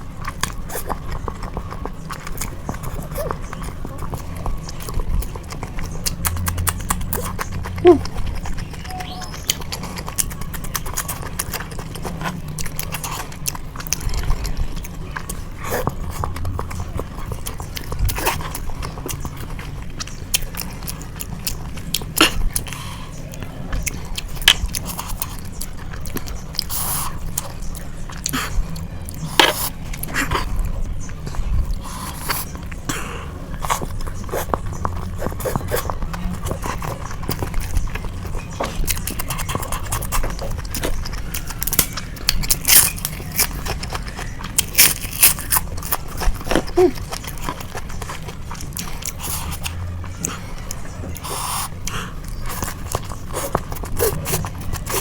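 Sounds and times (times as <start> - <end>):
chewing noodles with mouth clicks: 0.0 - 55.0.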